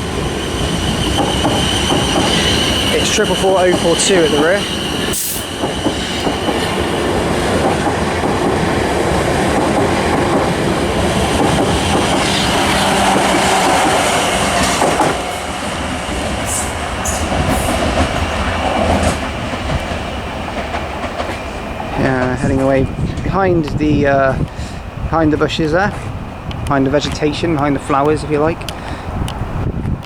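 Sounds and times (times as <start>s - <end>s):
train rumbling past: 0.0s - 30.0s
train wheels squealing: 0.2s - 7.1s.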